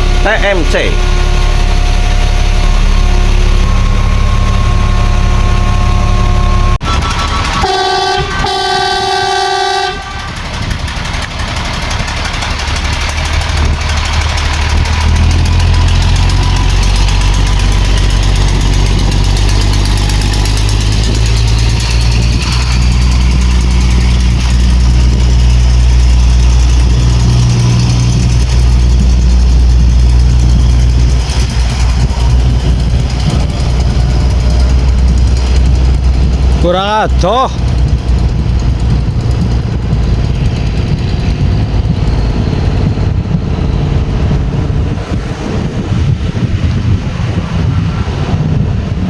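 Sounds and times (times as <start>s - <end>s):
diesel engine running: 0.0s - 49.0s
vehicle horn blasts: 7.6s - 10.5s.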